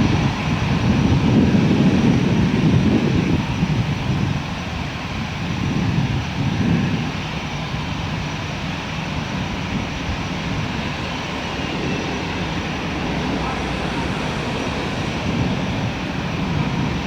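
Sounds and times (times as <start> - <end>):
jet engines rumbling: 7.8 - 17.0.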